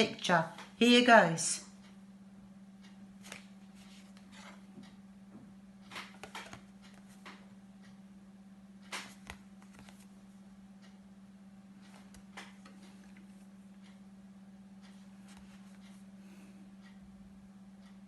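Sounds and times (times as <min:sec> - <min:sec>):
low electrical hum: 0:00.0 - 0:18.0
paper flashcard taps and rustles: 0:03.2 - 0:04.6, 0:05.9 - 0:07.4, 0:08.9 - 0:10.1.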